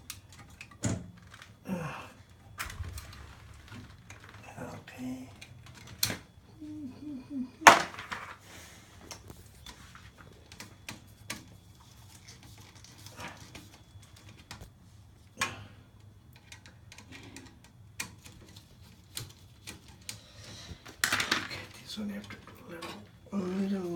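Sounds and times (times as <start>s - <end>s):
faint low hum: 0.0s - 23.9s
small parts clicking and tapping: 9.0s - 23.1s.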